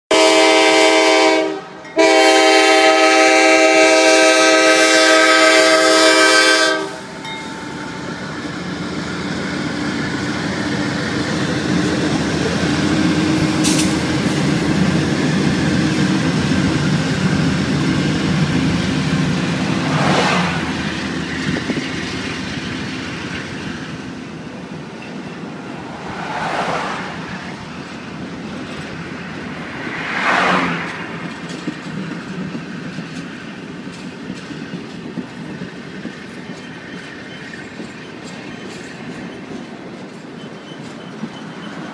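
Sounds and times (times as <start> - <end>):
locomotive air horn: 0.1 - 7.3
train rolling past: 0.1 - 41.9.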